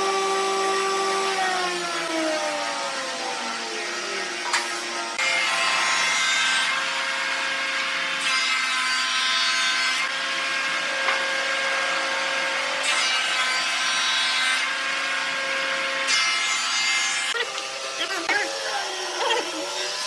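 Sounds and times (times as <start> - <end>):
power tool motor whine: 0.0 - 8.0.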